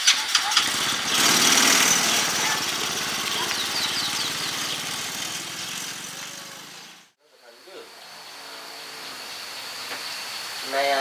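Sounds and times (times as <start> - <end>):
motorbike engine running: 0.1 - 7.1.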